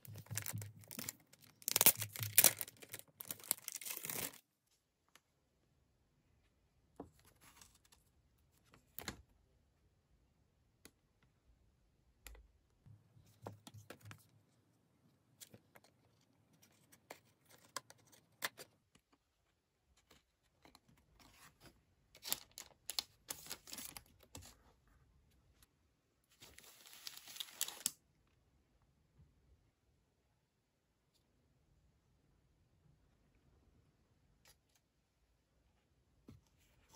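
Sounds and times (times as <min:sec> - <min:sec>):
plastic sleeve crinkling: 0:00.0 - 0:04.4.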